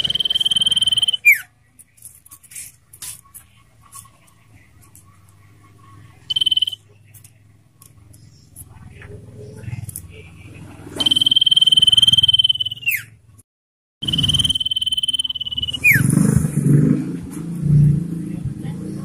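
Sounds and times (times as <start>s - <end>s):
bird rattling trill: 0.0s - 1.5s, 6.3s - 6.8s, 11.0s - 13.1s, 14.0s - 16.2s.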